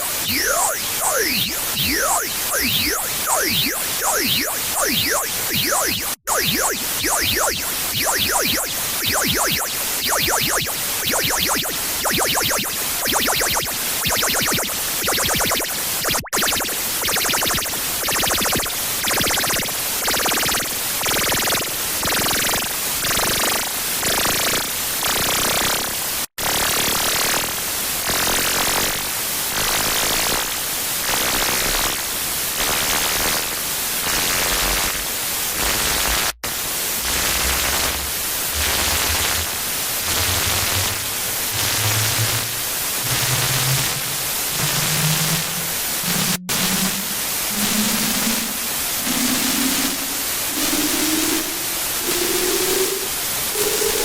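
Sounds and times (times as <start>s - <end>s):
loud pulsing electronic static: 0.0s - 23.6s, 35.6s - 54.0s
low electronic tone climbing: 37.2s - 48.5s.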